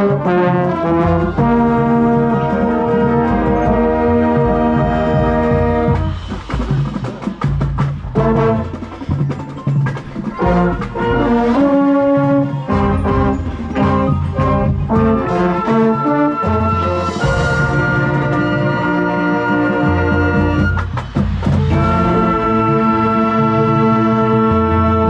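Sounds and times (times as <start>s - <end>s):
brass chords: 0.0s - 9.4s, 10.0s - 25.0s
drum hits: 4.4s - 15.5s.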